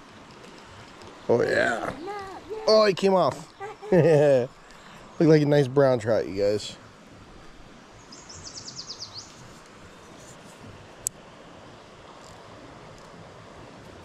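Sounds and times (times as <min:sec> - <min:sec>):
outdoor background hiss: 0:00.0 - 0:14.0
songbird trilling: 0:08.1 - 0:09.4.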